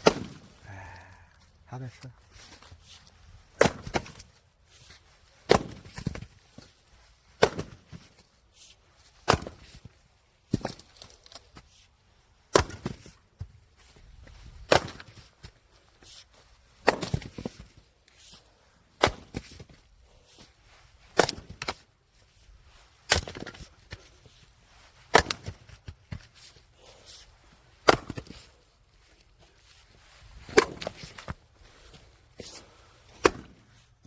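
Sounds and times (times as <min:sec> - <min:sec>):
axe chopping firewood: 0:00.0 - 0:00.6, 0:03.5 - 0:04.4, 0:05.4 - 0:06.7, 0:07.3 - 0:08.2, 0:09.2 - 0:11.6, 0:12.5 - 0:13.5, 0:14.6 - 0:15.6, 0:16.8 - 0:17.8, 0:18.9 - 0:19.8, 0:21.1 - 0:21.8, 0:23.0 - 0:24.2, 0:25.0 - 0:26.5, 0:27.8 - 0:28.6, 0:30.4 - 0:31.4, 0:32.4 - 0:33.8.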